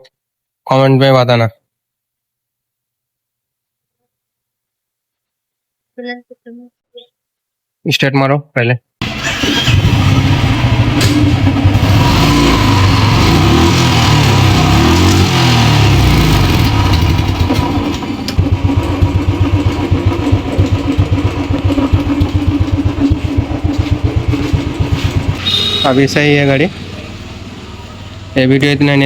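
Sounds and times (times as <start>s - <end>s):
motorcycle engine revving and idling: 9.0s - 29.0s.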